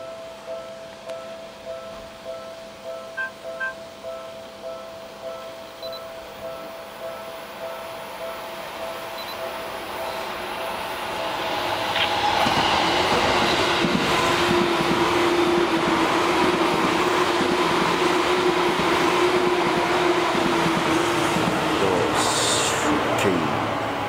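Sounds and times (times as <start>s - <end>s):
steady pitched tone: 0.0s - 11.4s
electric train passing: 0.0s - 24.0s.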